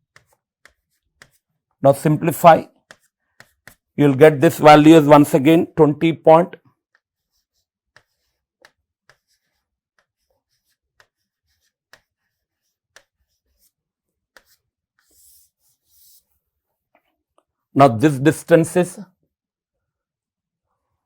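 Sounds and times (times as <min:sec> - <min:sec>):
pen scratching while writing: 0:00.1 - 0:01.8, 0:02.7 - 0:04.0, 0:06.7 - 0:16.4.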